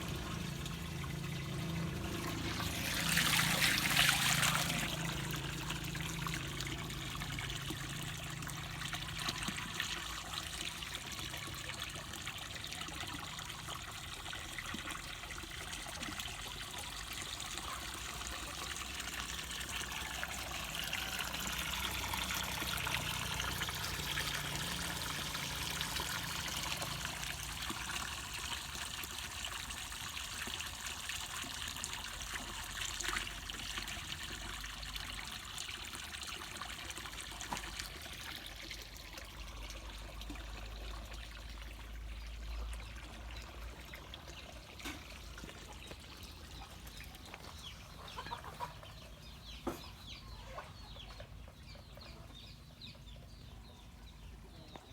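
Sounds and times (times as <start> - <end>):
water trickling and splashing: 0.0 - 54.9
chickens clucking: 47.3 - 52.3.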